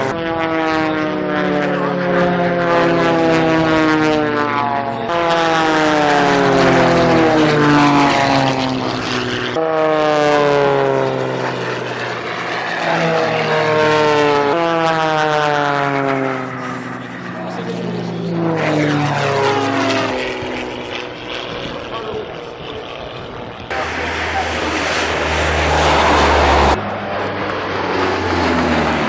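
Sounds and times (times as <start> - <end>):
propeller airplane engine: 0.0 - 29.0.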